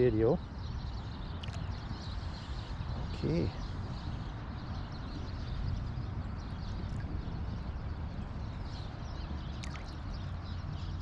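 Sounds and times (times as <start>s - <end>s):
flowing creek water: 9.4s - 11.0s.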